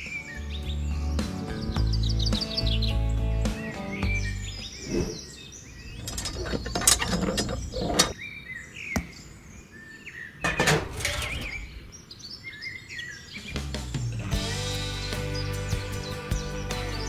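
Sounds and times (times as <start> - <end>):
bird chirps: 1.5 - 13.6
scraping and clicking of handwork: 6.0 - 8.2.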